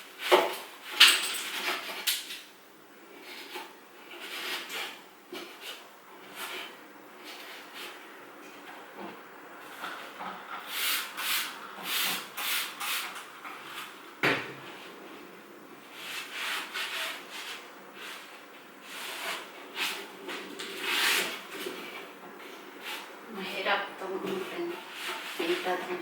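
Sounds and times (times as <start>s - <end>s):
paint rubbing strokes: 9.6s - 14.0s, 15.9s - 26.0s.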